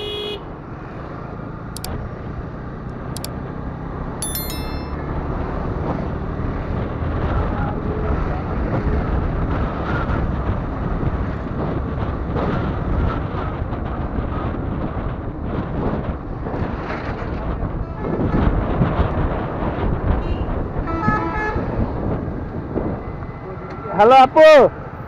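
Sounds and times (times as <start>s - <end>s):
motorcycle road noise: 0.0s - 4.2s, 5.0s - 25.0s
wind on microphone: 6.7s - 23.2s.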